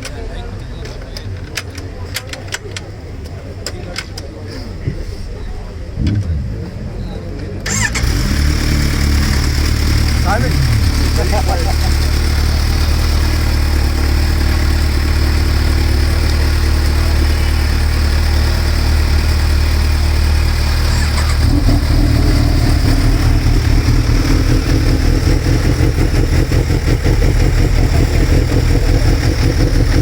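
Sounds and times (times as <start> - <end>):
motorcycle engine idling: 6.0 - 30.0.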